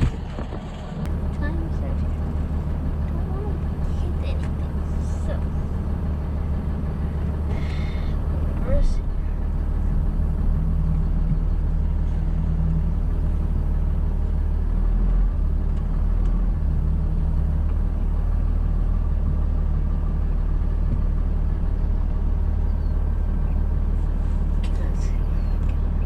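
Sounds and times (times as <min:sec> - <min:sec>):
truck engine droning: 0:00.0 - 0:26.0.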